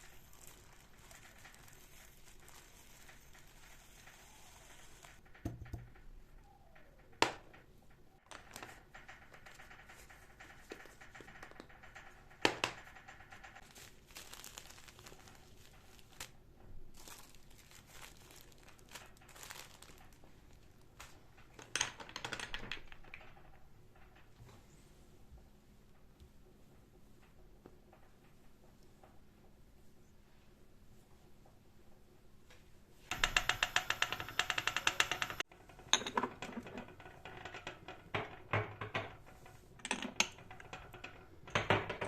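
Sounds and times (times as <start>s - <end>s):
crinkling and rustling: 0.0s - 30.1s, 32.6s - 42.0s
sharp clacks: 33.1s - 35.4s.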